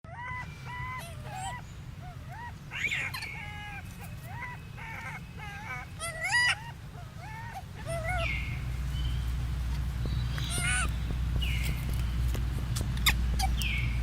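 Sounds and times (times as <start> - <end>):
animal squealing calls: 0.1 - 8.8, 10.3 - 11.8, 12.7 - 13.9
low rumble: 7.8 - 14.0.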